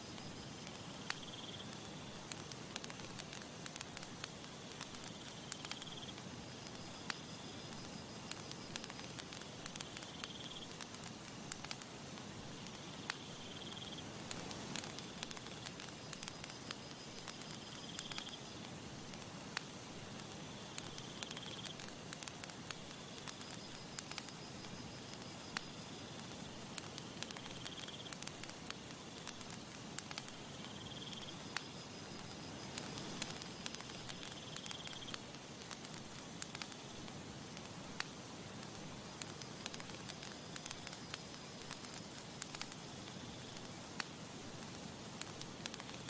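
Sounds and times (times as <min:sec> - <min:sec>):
insect trilling: 0:00.0 - 0:03.2, 0:03.8 - 0:10.9, 0:12.5 - 0:18.6, 0:20.5 - 0:26.2, 0:26.9 - 0:35.3
campfire crackling and popping: 0:00.0 - 0:46.0.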